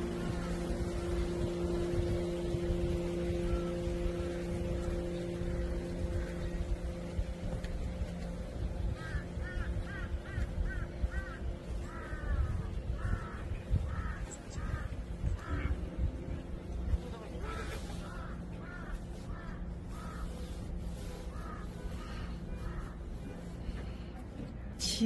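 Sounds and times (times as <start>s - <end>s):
bird calling: 0.0s - 7.4s, 17.4s - 23.1s
low steady hum: 0.0s - 25.0s.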